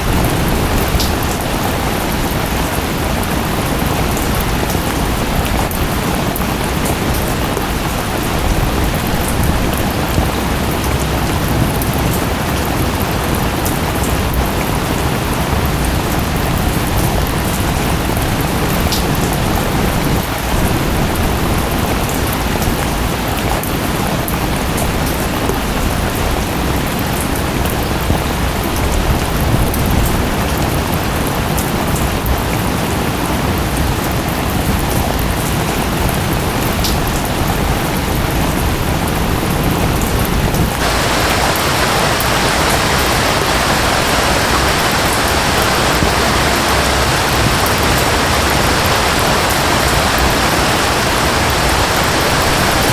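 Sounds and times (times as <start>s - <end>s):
waterfall noise: 0.0s - 25.0s, 39.9s - 52.9s
steady rain: 0.0s - 52.9s.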